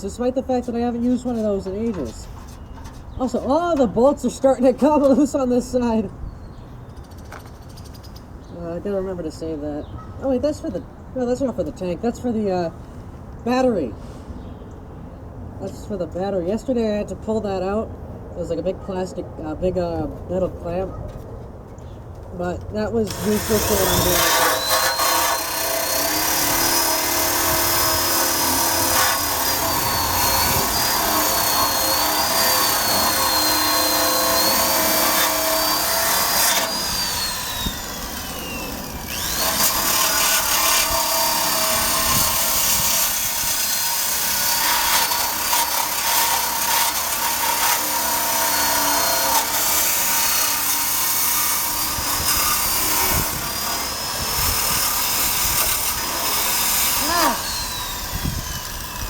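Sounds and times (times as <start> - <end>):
wire brush scrubbing metal: 23.1 - 59.0.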